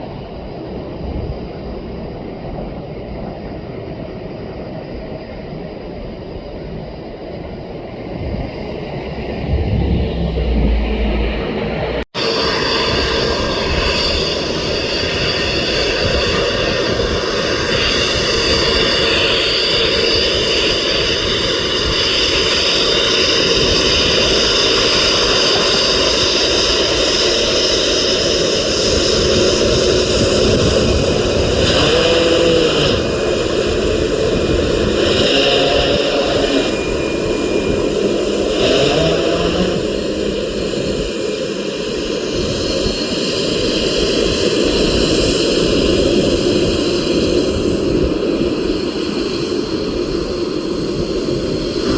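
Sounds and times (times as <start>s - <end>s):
jet engines running: 0.0s - 51.9s
high whining tones: 8.2s - 21.2s, 23.2s - 44.9s.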